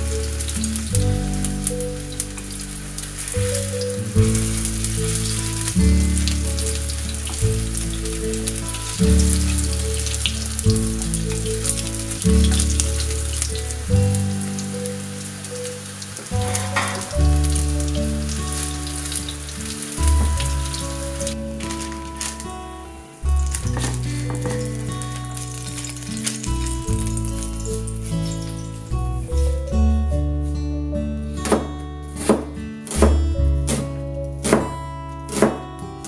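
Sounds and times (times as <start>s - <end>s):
food frying in oil: 0.0s - 22.5s, 23.4s - 29.0s
background music with low chords: 0.0s - 36.0s.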